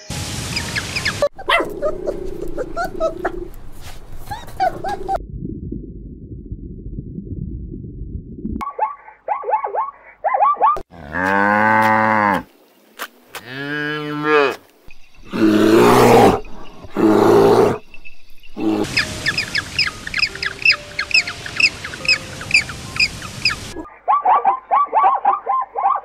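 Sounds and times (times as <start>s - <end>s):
rough growl-like animal calls: 1.4s - 3.6s, 15.2s - 17.8s
cow mooing: 10.9s - 12.4s, 13.4s - 14.6s
quick high bird chirps: 18.9s - 23.6s.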